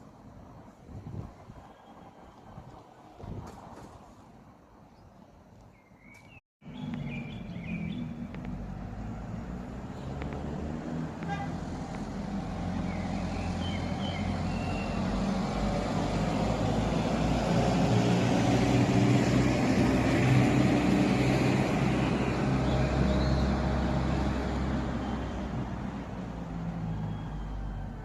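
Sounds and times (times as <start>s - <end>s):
motor vehicle passing: 6.6s - 27.9s.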